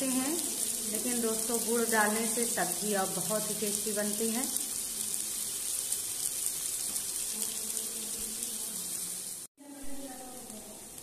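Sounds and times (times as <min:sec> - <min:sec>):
pumpkin sizzling in oil: 0:00.0 - 0:11.0.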